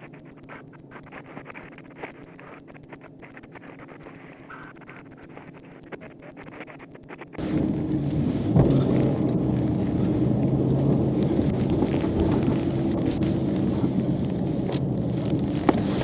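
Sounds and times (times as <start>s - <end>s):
faint clicks: 0.0s - 7.4s
engine hum: 7.4s - 16.0s
wind rumbling on microphone: 7.4s - 16.0s.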